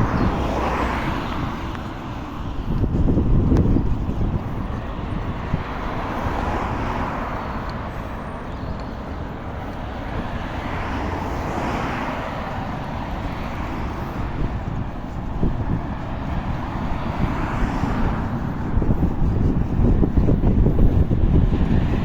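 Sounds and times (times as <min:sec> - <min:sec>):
road traffic passing: 0:00.0 - 0:22.0
wind rumble on microphone: 0:00.0 - 0:22.0.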